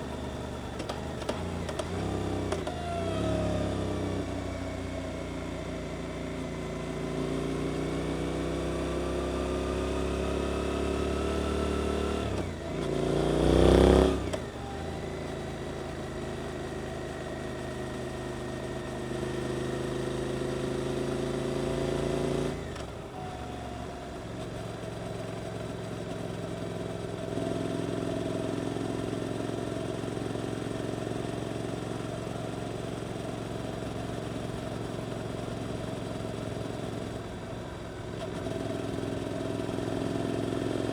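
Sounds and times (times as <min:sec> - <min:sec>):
motorcycle engine revving: 0:07.0 - 0:14.5.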